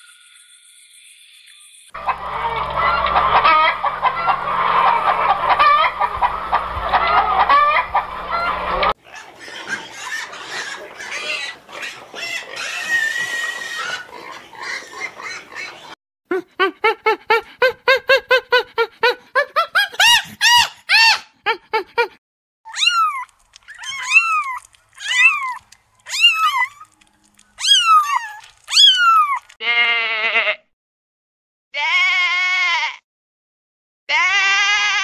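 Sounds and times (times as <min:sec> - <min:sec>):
sheep bleating: 0:29.6 - 0:30.6.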